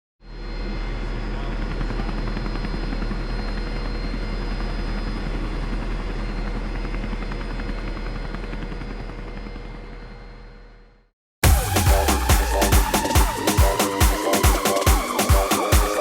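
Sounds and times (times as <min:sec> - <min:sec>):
helicopter rotor and engine: 0:00.2 - 0:10.8.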